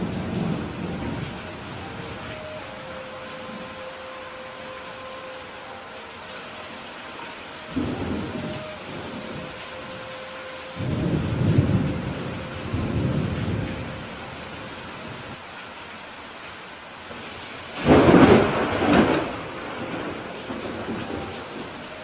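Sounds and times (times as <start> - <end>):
thunder rumbling: 0.0 - 3.8, 7.7 - 15.4, 17.7 - 21.9
steady rain: 0.0 - 22.0
sharp peal of thunder: 17.8 - 21.0.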